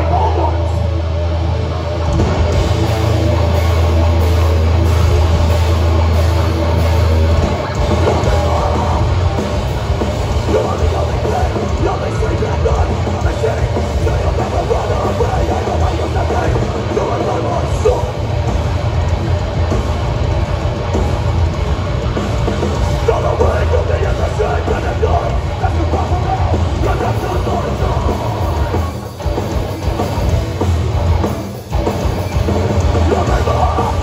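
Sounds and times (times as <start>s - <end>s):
live hardcore band through pa: 0.0s - 34.0s.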